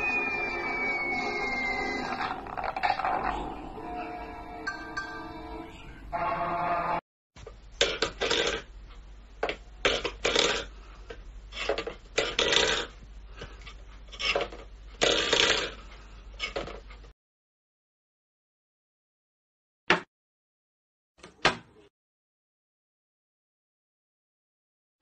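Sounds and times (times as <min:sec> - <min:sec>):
background music: 0:00.0 - 0:07.0
metal bowl scraping on wooden floor: 0:01.9 - 0:03.6, 0:11.5 - 0:15.8.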